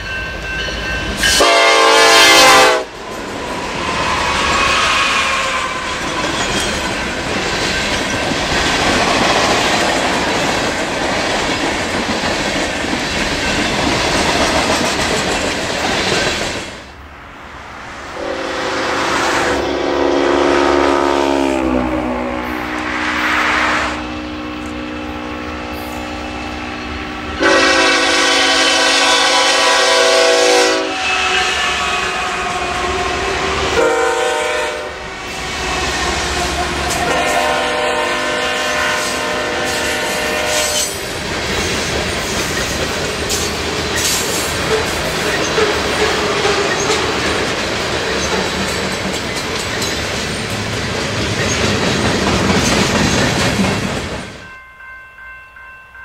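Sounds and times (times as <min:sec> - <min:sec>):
freight train rumble: 0:00.0 - 0:56.0
locomotive air horn: 0:01.2 - 0:03.0, 0:18.2 - 0:24.4, 0:27.4 - 0:41.0.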